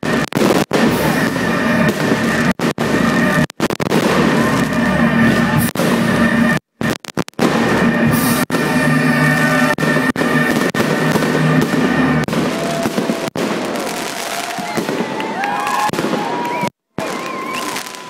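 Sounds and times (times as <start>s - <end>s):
fireworks crackling and banging: 0.0s - 18.0s
music playing: 0.8s - 6.6s, 7.4s - 13.2s.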